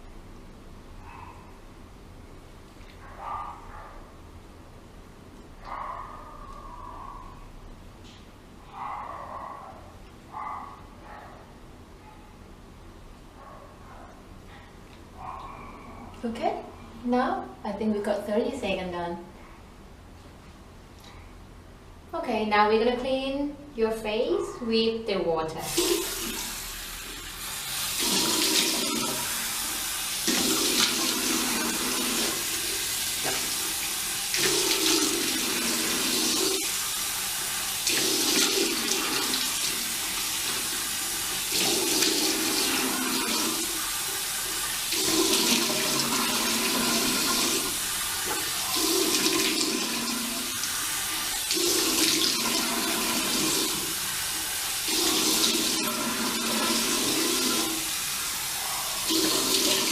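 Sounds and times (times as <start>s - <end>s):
tap water running into sink: 25.7s - 59.9s
water splashing face rinsing: 25.7s - 59.9s.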